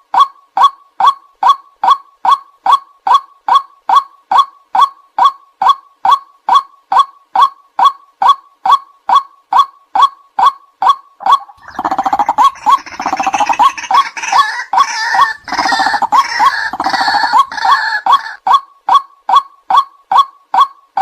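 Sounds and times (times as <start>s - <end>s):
chorus of rough bird calls: 11.2s - 18.4s
waterhen repeated sharp note: 11.2s - 18.4s.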